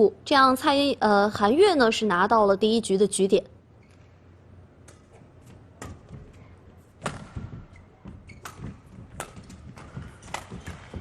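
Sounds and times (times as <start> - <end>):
rackets striking shuttlecock: 4.8 - 6.3, 7.0 - 11.0
footsteps on court: 4.9 - 11.0.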